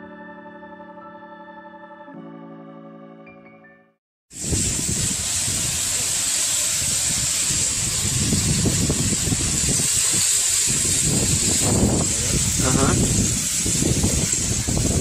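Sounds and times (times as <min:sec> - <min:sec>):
bright even hiss: 0:04.4 - 0:15.0.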